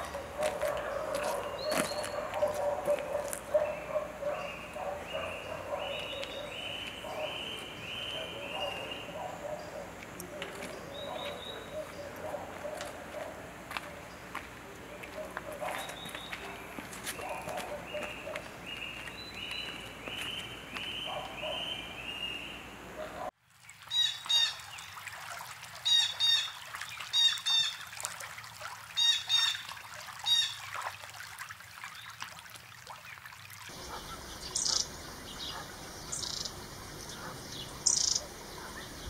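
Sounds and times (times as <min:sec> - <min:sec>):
wild birds calling: 0:00.0 - 0:23.3, 0:33.7 - 0:39.0
high bird chirps: 0:33.9 - 0:39.0.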